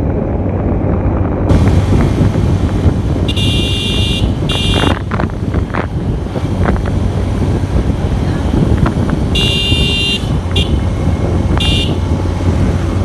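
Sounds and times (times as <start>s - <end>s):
motorcycle engine rumble: 0.0s - 13.0s
road traffic: 0.0s - 13.0s
wind buffeting microphone: 0.0s - 13.0s
horn blasts: 3.0s - 5.3s, 9.2s - 12.2s.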